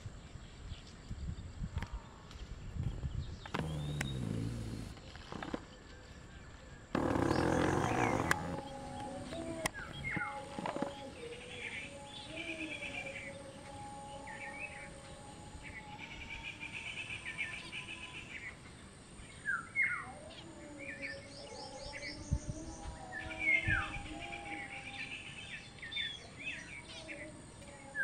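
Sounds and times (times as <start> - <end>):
small birds chirping and twittering: 2.3 - 5.0, 5.7 - 28.0
low thumps: 3.6 - 5.0.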